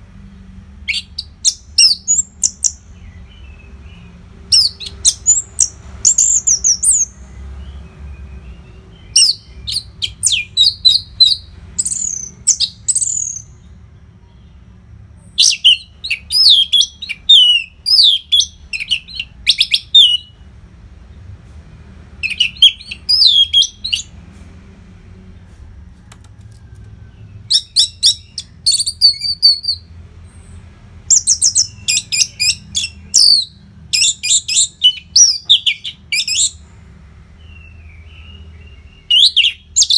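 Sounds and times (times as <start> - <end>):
bird singing high whistles and trills: 0.9 - 14.5, 15.2 - 20.4, 22.2 - 24.1, 27.4 - 36.6, 37.4 - 39.9.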